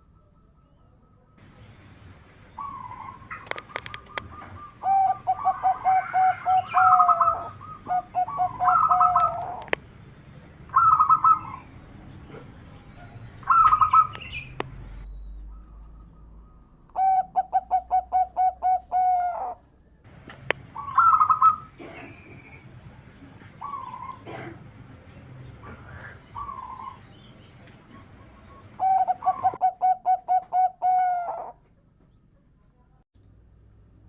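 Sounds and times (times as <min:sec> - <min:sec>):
bird calls: 0:00.0 - 0:32.6
dove cooing: 0:02.5 - 0:09.8, 0:10.7 - 0:11.7, 0:12.3 - 0:14.6, 0:15.6 - 0:19.6, 0:20.4 - 0:24.8, 0:25.4 - 0:31.6.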